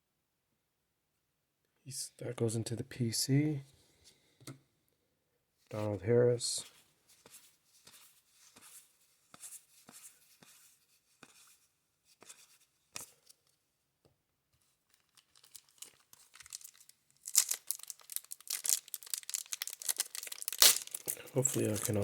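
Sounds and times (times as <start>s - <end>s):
cards being handled: 14.9s - 22.0s
wrapper torn open and crinkled: 15.0s - 22.0s.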